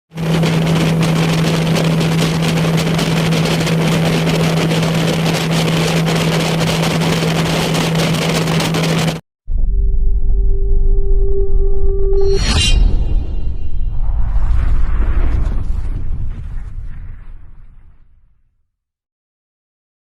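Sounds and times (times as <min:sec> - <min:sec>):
motorboat engine running: 0:00.1 - 0:12.1
wind buffeting microphone: 0:00.2 - 0:09.2.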